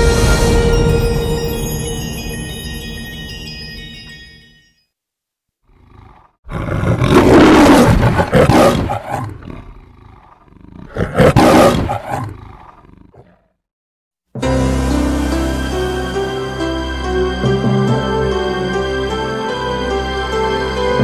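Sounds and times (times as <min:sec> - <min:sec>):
lion roaring: 0:05.7 - 0:13.6.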